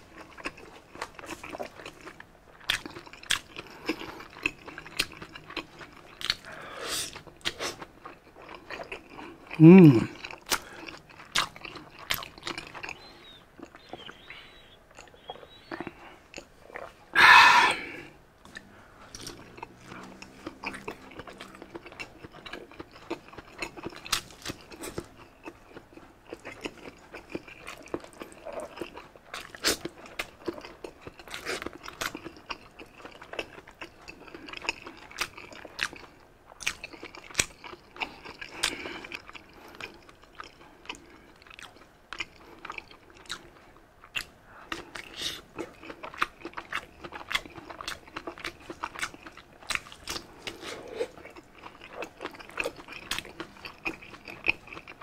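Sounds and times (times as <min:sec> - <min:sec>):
crunchy chewing: 0:00.0 - 0:55.0
breathy exhale: 0:06.5 - 0:07.1.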